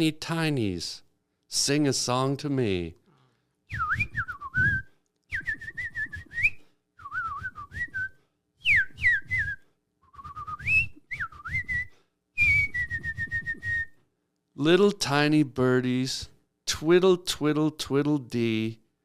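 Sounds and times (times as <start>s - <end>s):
person whistling bird-like phrases: 3.7s - 9.6s, 10.2s - 13.9s.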